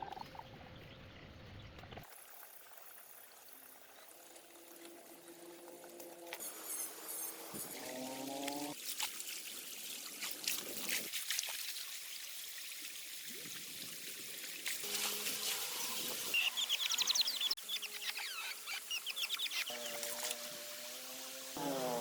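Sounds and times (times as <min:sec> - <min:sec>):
water trickling: 0:02.3 - 0:16.3
bird chirping: 0:16.3 - 0:20.2.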